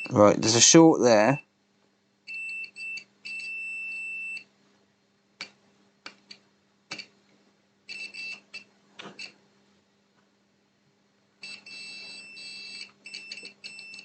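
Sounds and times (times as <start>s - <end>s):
multimeter beeping: 0.0s - 0.2s, 2.3s - 4.5s, 7.9s - 9.4s, 11.4s - 14.0s.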